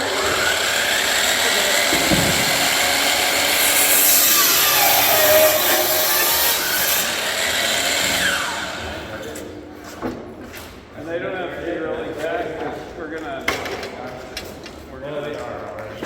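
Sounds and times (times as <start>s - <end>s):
power saw cutting wood: 0.0s - 9.3s.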